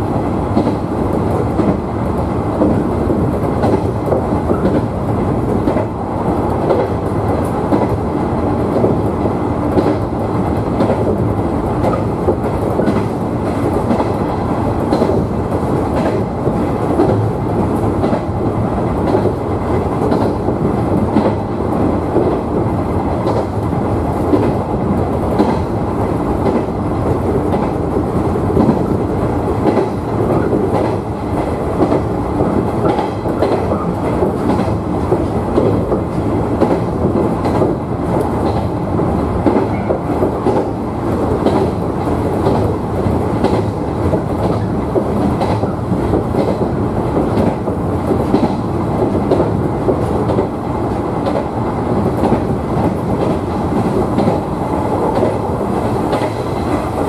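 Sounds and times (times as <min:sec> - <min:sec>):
train wheels rumbling: 0:00.0 - 0:57.0
clicks over rail joints: 0:41.4 - 0:50.5.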